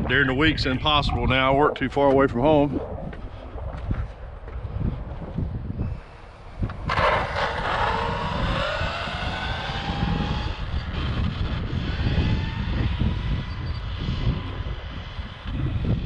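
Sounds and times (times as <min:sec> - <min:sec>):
wind buffeting microphone: 0:00.0 - 0:16.0
electric motor whining: 0:05.9 - 0:16.0.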